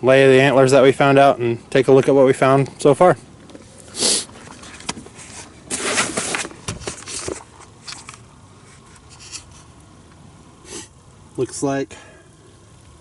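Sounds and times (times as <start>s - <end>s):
rustling: 3.3s - 11.0s.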